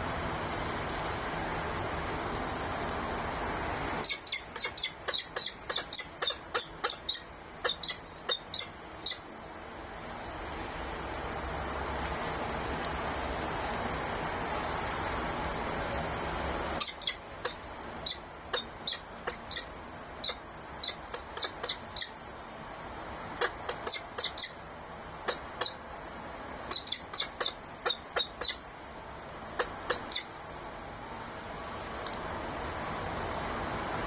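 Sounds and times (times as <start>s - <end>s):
bird chirping: 4.0s - 9.3s, 16.8s - 22.2s, 23.4s - 24.6s, 25.3s - 25.8s, 26.7s - 28.6s, 29.6s - 30.4s.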